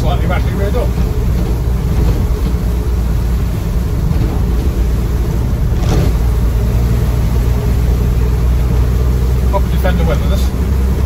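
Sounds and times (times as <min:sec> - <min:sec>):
diesel engine and road noise: 0:00.0 - 0:11.0.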